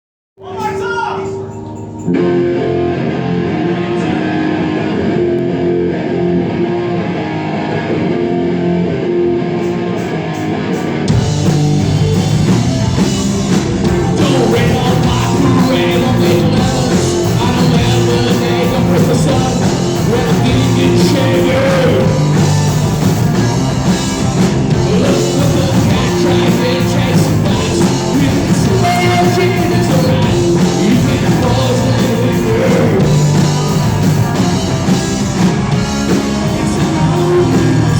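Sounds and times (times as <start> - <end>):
rock band playing live: 0.4 - 37.9
electric guitar: 1.2 - 37.9
drums and bass: 8.4 - 37.9.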